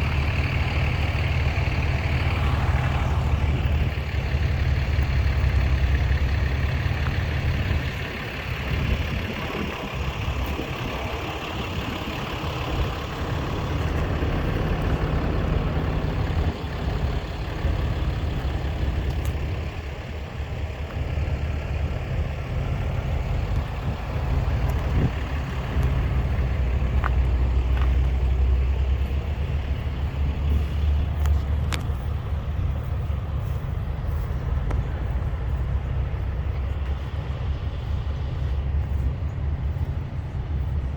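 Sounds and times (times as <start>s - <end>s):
noisy outdoor background: 0.0s - 40.9s
truck engines rumbling: 0.0s - 40.9s.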